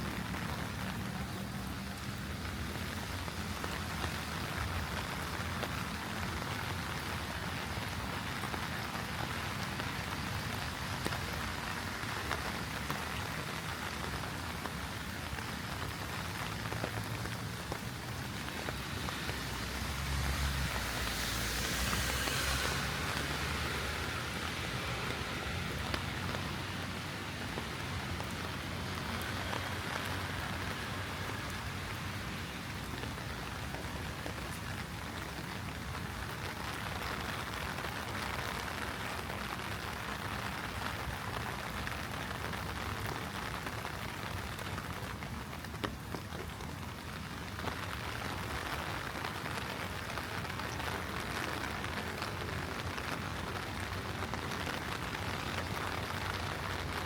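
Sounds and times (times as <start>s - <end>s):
heavy rain spattering: 0.0s - 57.0s
sharp raindrop taps: 42.0s - 57.0s.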